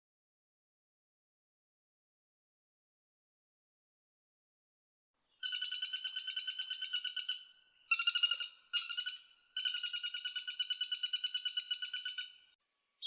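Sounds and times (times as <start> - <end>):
woodpecker calling in rapid runs: 5.4 - 12.5.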